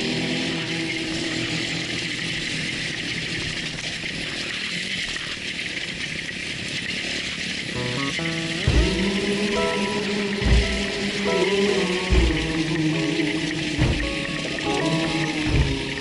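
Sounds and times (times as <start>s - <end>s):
faint music: 7.8s - 16.0s
saw cutting with mechanical whir: 8.2s - 16.0s.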